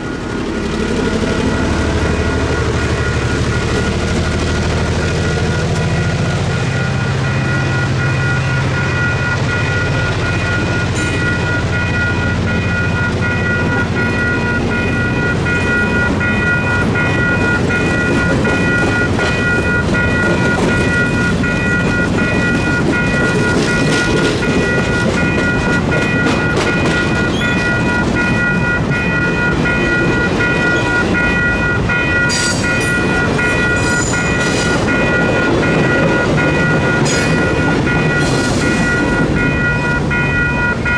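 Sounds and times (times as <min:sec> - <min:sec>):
train wheels on rails: 0:00.0 - 0:40.9
high tones: 0:05.2 - 0:40.9.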